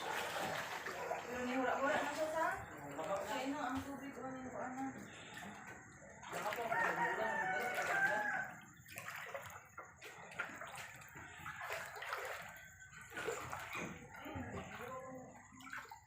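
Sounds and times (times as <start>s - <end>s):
rooster crowing: 6.6s - 8.7s.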